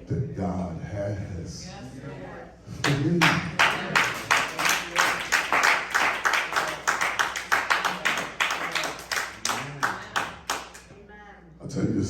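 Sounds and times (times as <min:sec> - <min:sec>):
congregation clapping in rhythm: 0:02.8 - 0:10.9.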